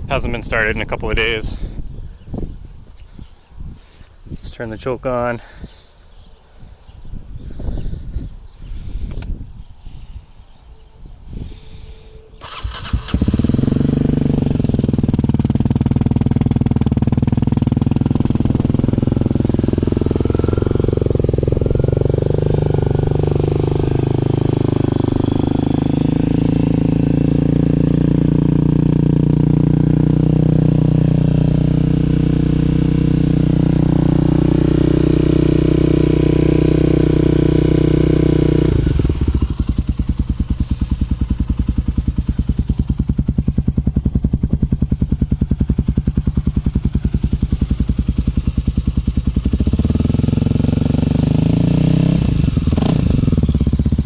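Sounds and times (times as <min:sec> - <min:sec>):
motorcycle engine idling: 0:12.3 - 0:54.0.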